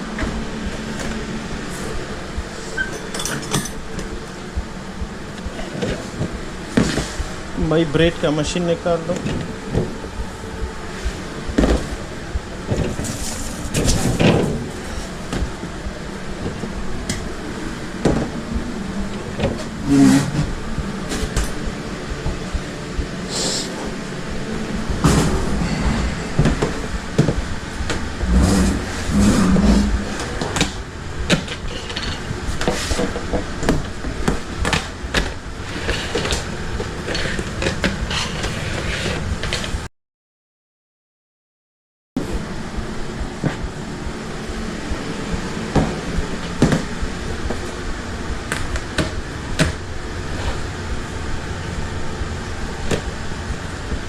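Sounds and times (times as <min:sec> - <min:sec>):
background hum: 0:00.0 - 0:39.9, 0:42.2 - 0:54.0
utensils clattering: 0:02.8 - 0:03.8
heavy thuds: 0:24.7 - 0:31.3.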